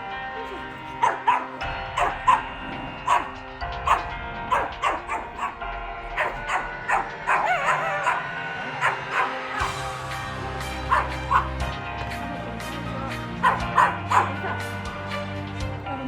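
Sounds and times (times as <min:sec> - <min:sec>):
background music: 0:00.0 - 0:16.0
dog barking sharply: 0:00.5 - 0:05.6, 0:06.2 - 0:09.8, 0:10.4 - 0:11.6, 0:13.4 - 0:14.7
dog wavering call: 0:06.2 - 0:09.8.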